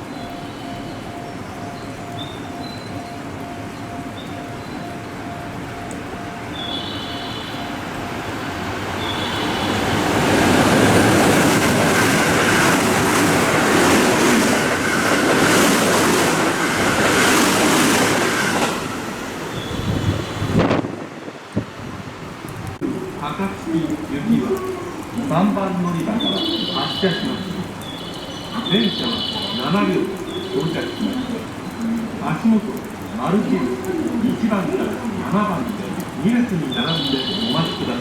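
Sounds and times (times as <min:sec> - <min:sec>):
train on tracks: 0:00.0 - 0:38.0
wheels beating on rails: 0:07.8 - 0:21.8.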